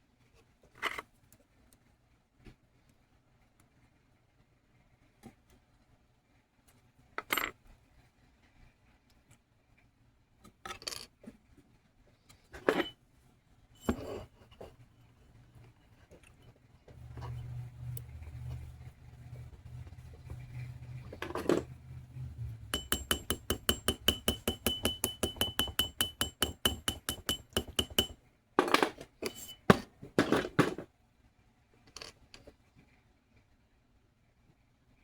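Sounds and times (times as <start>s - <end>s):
hammer tapping on metal: 22.4s - 28.2s
steady ringing tone: 22.4s - 28.2s.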